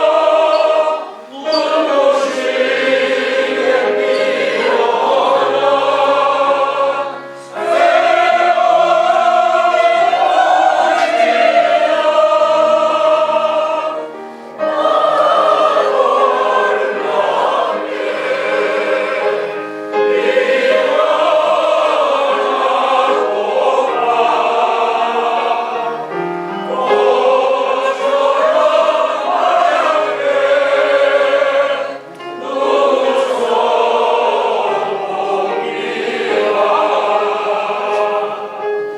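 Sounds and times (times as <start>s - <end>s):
group of voices singing: 0.0s - 38.9s
singers breathing: 14.2s - 14.7s.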